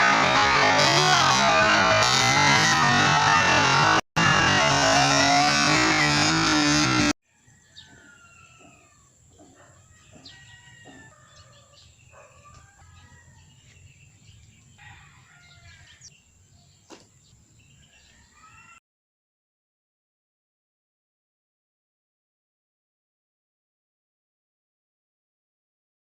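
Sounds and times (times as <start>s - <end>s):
loud synthesizer music: 0.0s - 7.2s
roosters crowing: 0.0s - 14.0s, 14.6s - 16.1s, 17.6s - 18.8s.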